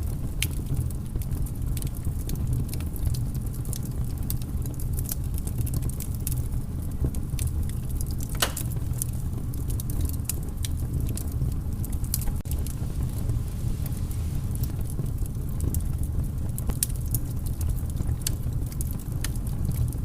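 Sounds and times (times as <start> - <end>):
campfire crackling: 0.0 - 20.0
fire low rumble: 0.0 - 20.0
loud fire pop: 8.4 - 8.8.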